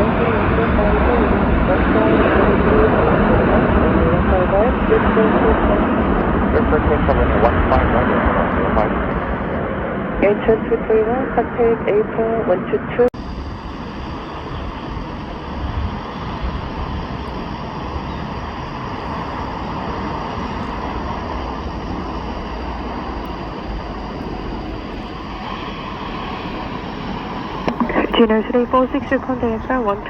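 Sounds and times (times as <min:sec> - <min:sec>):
jet engine rushing: 0:00.0 - 0:30.0.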